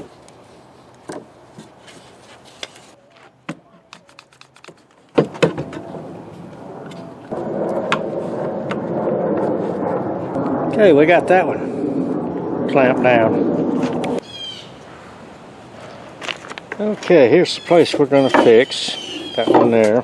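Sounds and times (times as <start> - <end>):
steady noise: 5.6 - 14.2.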